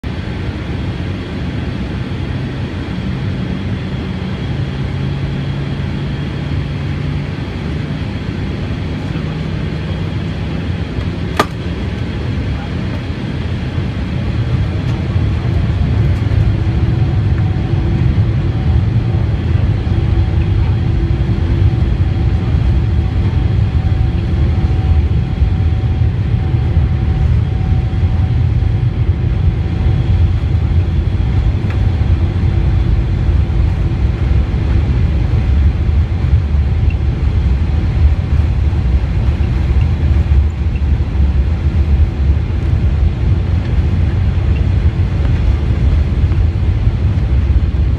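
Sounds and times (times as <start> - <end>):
jet engines at takeoff thrust: 0.0 - 47.9
wheels rumbling on runway: 0.0 - 47.9.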